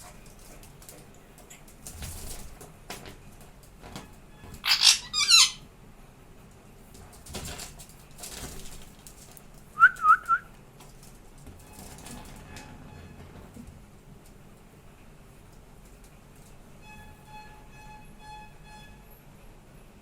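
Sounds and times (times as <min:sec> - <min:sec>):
parrot screeches: 0:04.6 - 0:05.7.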